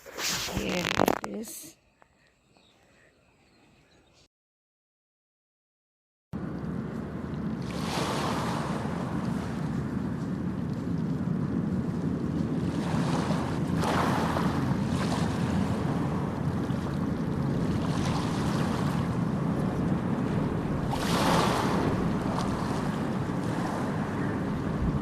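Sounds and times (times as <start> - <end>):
wind buffeting microphone: 6.4 - 25.0.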